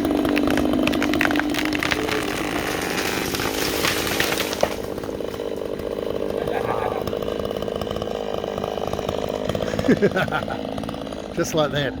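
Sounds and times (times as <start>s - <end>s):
tree crackling as it falls: 0.0s - 6.3s
chainsaw running: 0.0s - 12.0s
tree hitting the ground thump: 0.1s - 5.5s.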